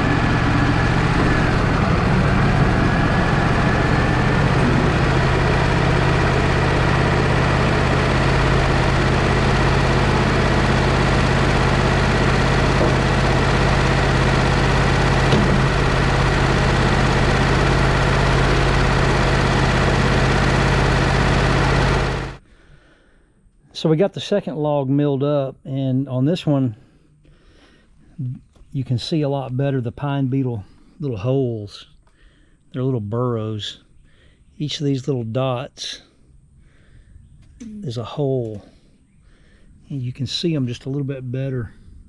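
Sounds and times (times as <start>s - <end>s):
sawmill engine running: 0.0s - 22.4s.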